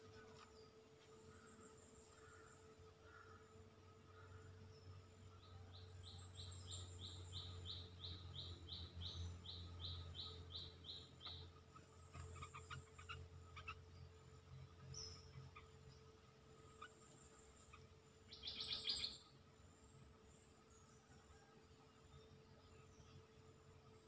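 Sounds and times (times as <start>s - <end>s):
faint bird calls: 1.2s - 14.1s, 16.7s - 19.3s.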